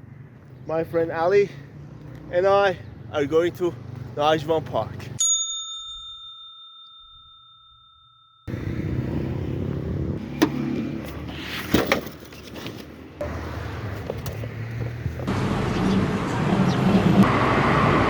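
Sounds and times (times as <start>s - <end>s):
outdoor traffic noise: 0.0s - 6.3s, 8.4s - 18.0s
bell-like ding: 5.2s - 8.5s.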